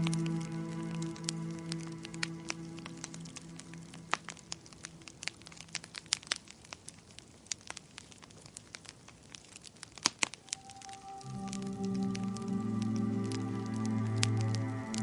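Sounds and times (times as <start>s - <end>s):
soft sustained music: 0.0s - 5.8s, 10.4s - 15.0s
wood fire crackling: 0.0s - 15.0s.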